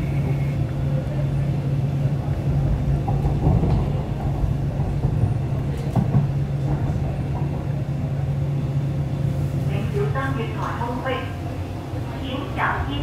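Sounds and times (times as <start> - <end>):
train carriage hum: 0.0 - 13.0
wheels rumbling on track: 0.0 - 13.0.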